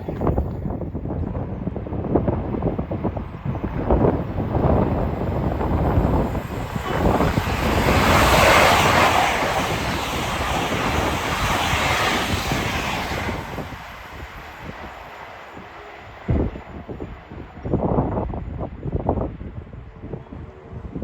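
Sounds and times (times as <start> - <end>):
wind buffeting microphone: 0.0 - 21.0
train passing: 0.2 - 21.0.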